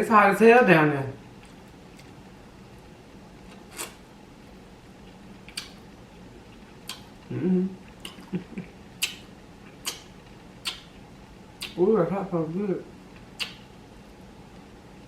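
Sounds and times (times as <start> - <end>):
wet mouth clicks and lip smacks: 5.5 - 5.8, 6.8 - 7.1, 8.0 - 8.3, 9.0 - 10.9, 11.6 - 11.8, 13.4 - 13.7
person humming: 7.3 - 8.6.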